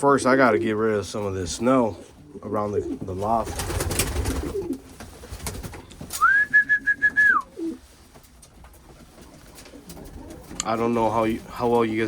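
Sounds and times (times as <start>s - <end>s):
pigeons cooing: 0.2s - 5.0s, 6.6s - 7.9s, 9.1s - 10.6s.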